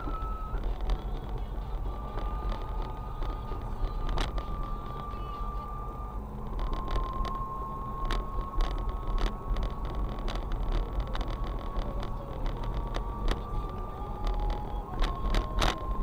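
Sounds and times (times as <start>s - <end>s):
thin whistle under car hood: 0.0s - 0.7s
car engine rumble: 0.0s - 16.0s.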